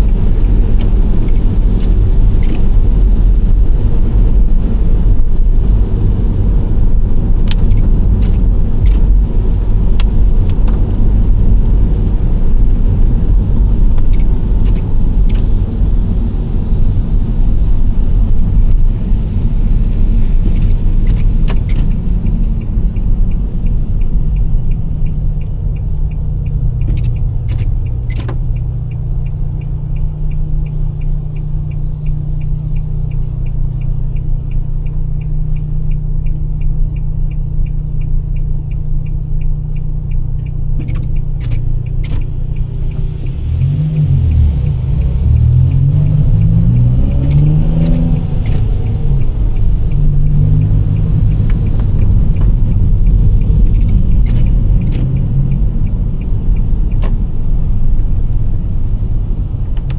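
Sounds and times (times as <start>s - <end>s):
sharp clicks and knocks: 0.0s - 2.8s, 7.4s - 11.9s, 20.4s - 57.3s
low engine hum: 0.0s - 59.9s
road and engine noise: 0.0s - 59.9s
turn signal relay ticking: 6.1s - 17.2s, 19.8s - 59.9s.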